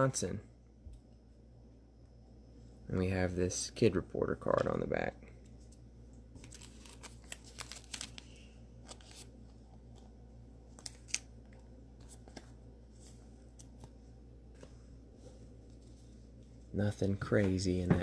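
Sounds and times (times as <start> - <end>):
steady low hum: 0.0 - 18.0
cards clicking and rustling: 6.4 - 10.1, 10.7 - 14.8.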